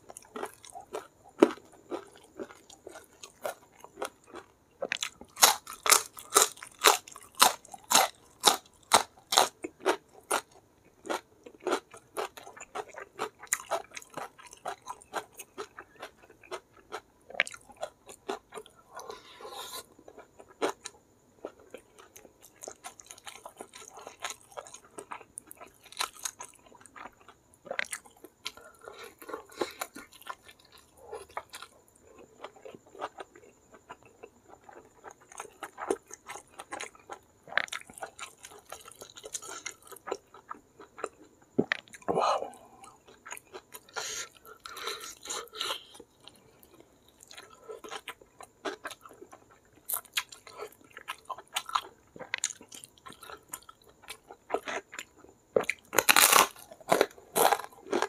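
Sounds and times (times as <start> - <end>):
wet chewing of food: 0.0 - 58.0
crisp crunching of raw bean: 0.1 - 10.5, 47.2 - 58.0.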